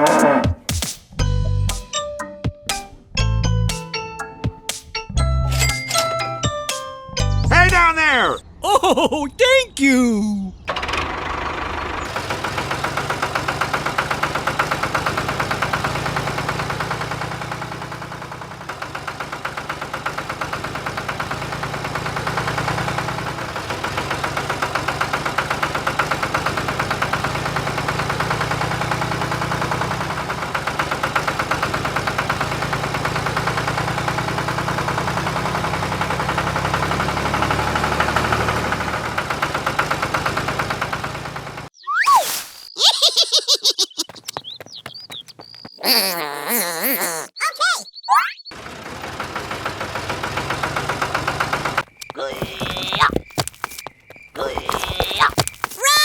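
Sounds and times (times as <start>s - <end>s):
small tractor engine running: 10.7s - 41.7s, 48.5s - 55.8s.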